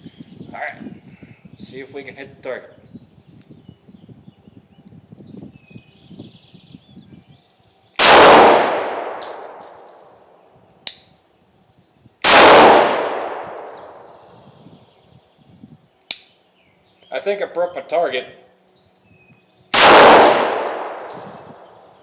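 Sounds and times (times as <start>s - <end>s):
pistol shots with echo: 8.0s - 10.0s, 12.2s - 14.2s, 19.7s - 21.8s.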